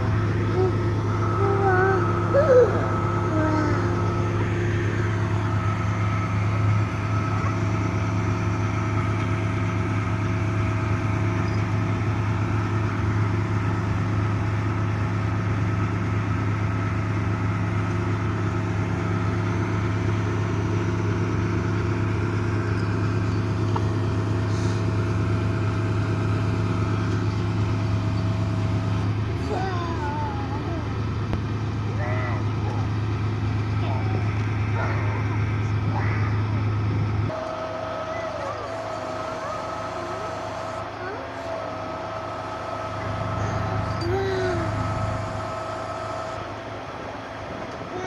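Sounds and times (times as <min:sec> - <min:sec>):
faint steady whine: 0:00.0 - 0:11.8
truck engine idling: 0:00.0 - 0:48.0.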